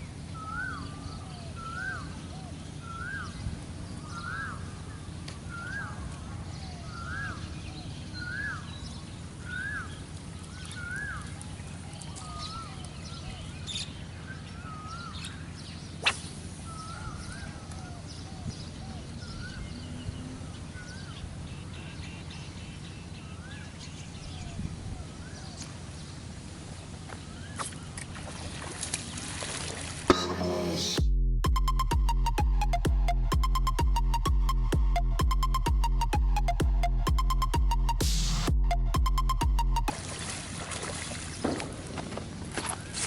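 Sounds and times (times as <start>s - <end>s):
bird calling: 0.0s - 23.8s
low outdoor background: 0.0s - 43.0s.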